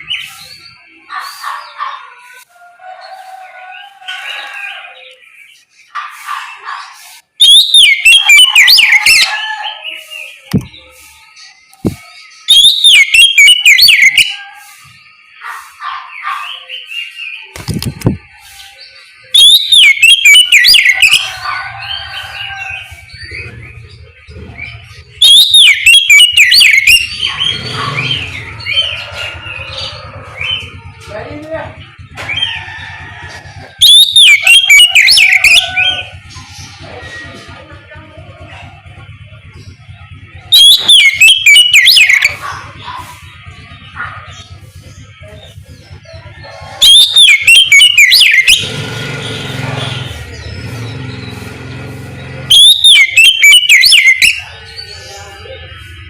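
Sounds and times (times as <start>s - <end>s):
bird chattering notes: 5.0s - 21.3s, 22.1s - 31.1s, 33.6s - 56.0s
bird singing warbling whistles: 7.4s - 9.4s, 11.6s - 14.4s, 19.2s - 21.2s, 24.6s - 28.7s, 33.8s - 36.1s, 40.5s - 42.4s, 46.8s - 48.8s, 52.5s - 54.5s.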